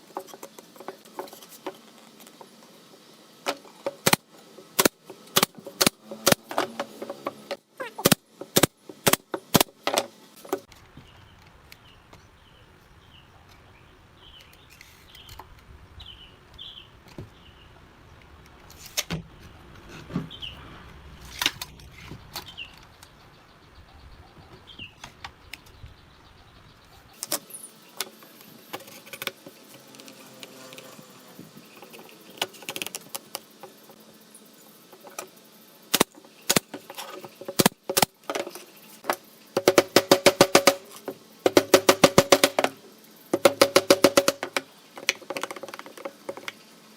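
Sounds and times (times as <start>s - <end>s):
sharp knocks: 41.5s - 46.4s.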